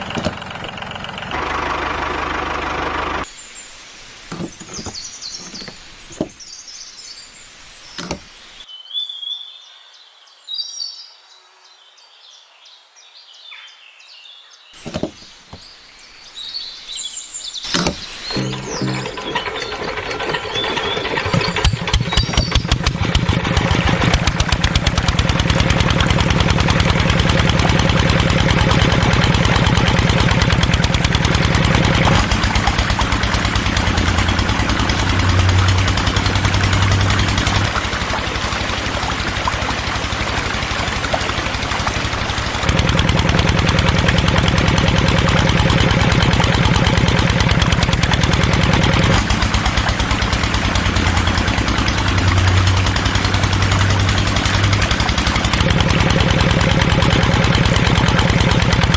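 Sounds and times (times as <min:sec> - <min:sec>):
small tractor engine running: 0:00.0 - 0:03.3, 0:17.7 - 0:58.9.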